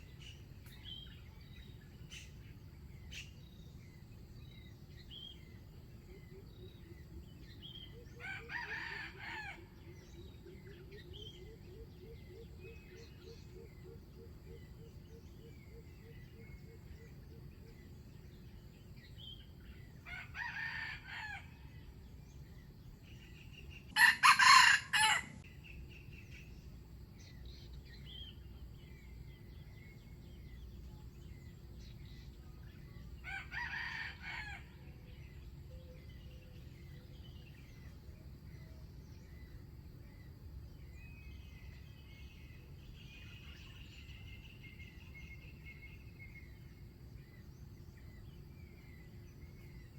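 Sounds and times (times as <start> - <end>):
small birds chirping: 0.0 - 9.5, 25.0 - 49.9
roosters crowing: 8.2 - 9.8, 20.0 - 21.8, 23.9 - 25.4, 33.2 - 34.9.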